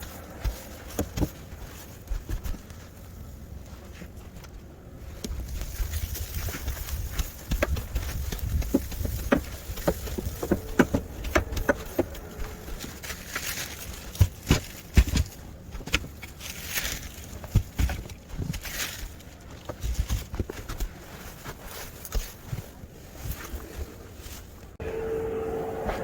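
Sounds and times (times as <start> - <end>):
footsteps crunching in snow: 0.0 - 24.6
wind rumble on microphone: 4.9 - 14.1.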